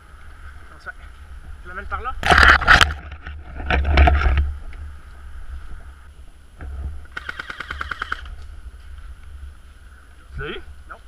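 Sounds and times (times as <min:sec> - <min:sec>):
airsoft gun firing: 0:07.1 - 0:08.3.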